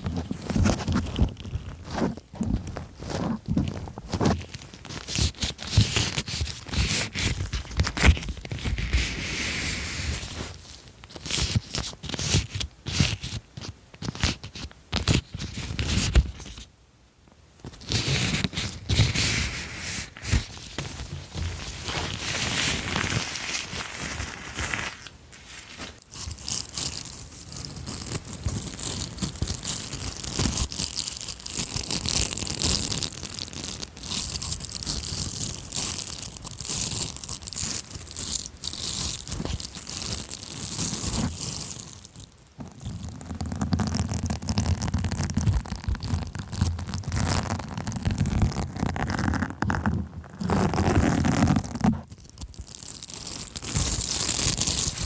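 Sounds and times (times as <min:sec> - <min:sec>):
crinkling and crackling: 0:00.0 - 0:16.7, 0:17.6 - 0:55.0.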